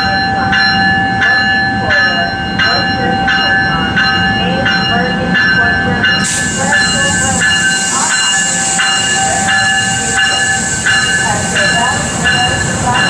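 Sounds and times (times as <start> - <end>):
electric train whine: 0.0 - 13.0
high hiss: 6.2 - 12.7.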